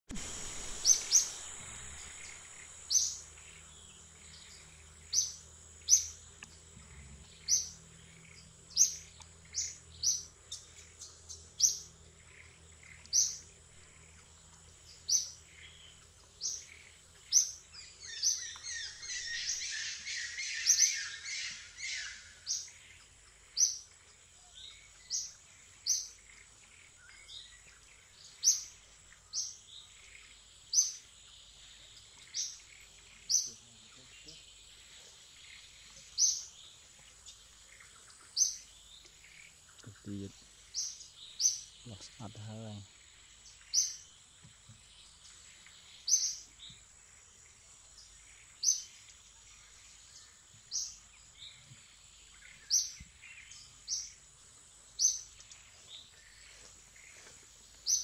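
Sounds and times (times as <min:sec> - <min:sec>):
forest birds chirping: 0:00.0 - 0:58.0
steady high-pitched whine: 0:00.1 - 0:36.6.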